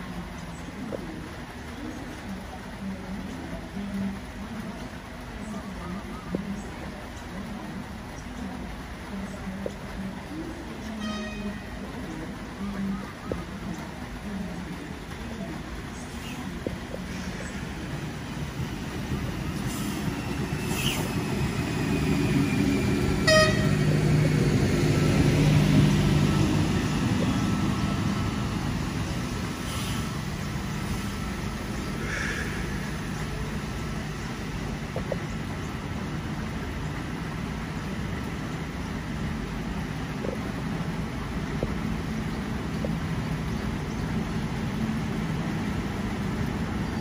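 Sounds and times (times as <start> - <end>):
train rumbling past: 1.2 - 47.0
train horn toot: 11.0 - 11.7, 23.2 - 23.9.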